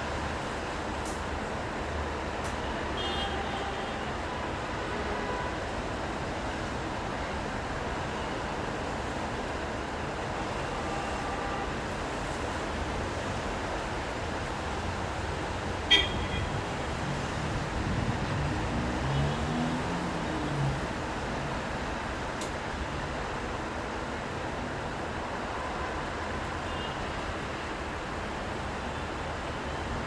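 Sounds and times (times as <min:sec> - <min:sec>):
street traffic hiss: 0:00.0 - 0:30.0
vehicle engine passing: 0:16.9 - 0:21.2.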